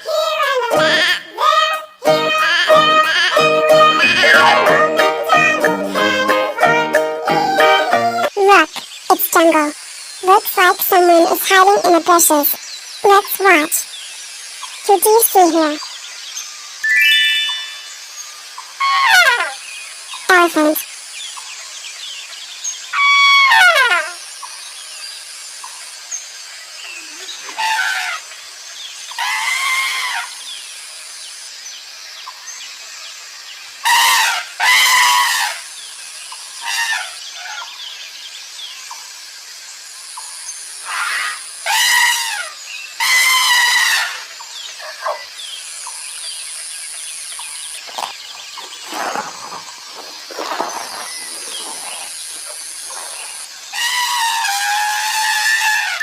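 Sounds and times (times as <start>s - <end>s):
insect buzz: 0.0s - 56.0s
jungle background hiss: 0.0s - 56.0s
elephant trumpeting: 2.6s - 4.9s, 50.3s - 56.0s.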